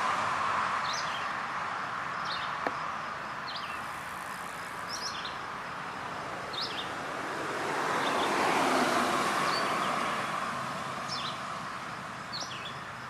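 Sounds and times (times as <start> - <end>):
vehicle passing by: 6.5 - 11.7.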